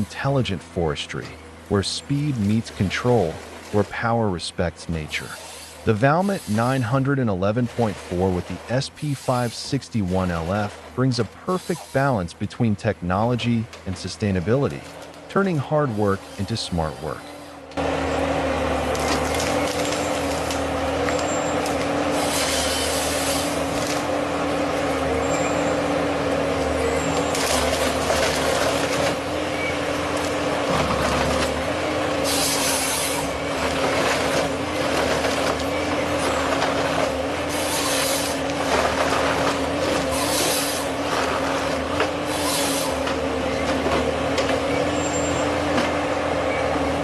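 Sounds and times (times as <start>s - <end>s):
diesel engine running: 0.0s - 47.0s
bursts of hissing: 42.2s - 43.0s.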